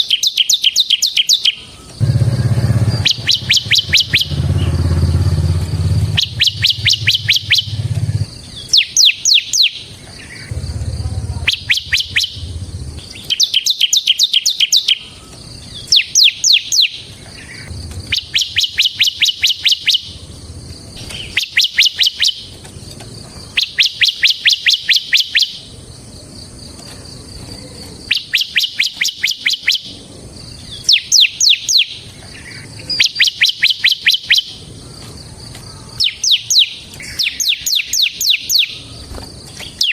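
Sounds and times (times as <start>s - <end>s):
bird singing high chirping notes: 0.0s - 22.5s, 23.5s - 25.7s, 28.0s - 30.0s, 30.6s - 34.6s, 36.0s - 38.9s.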